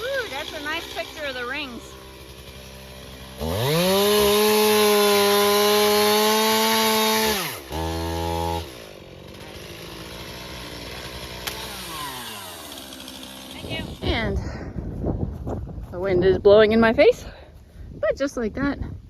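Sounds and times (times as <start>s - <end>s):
chainsaw revving and idling: 0.0s - 14.5s.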